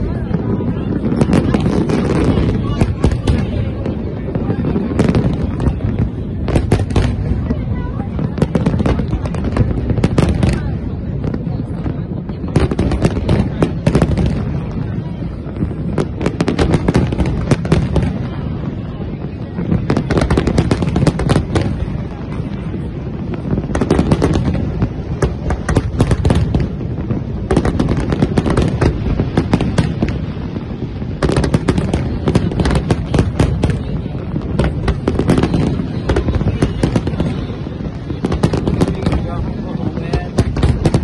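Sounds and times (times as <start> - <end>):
fireworks bangs and crackles: 0.0 - 41.0.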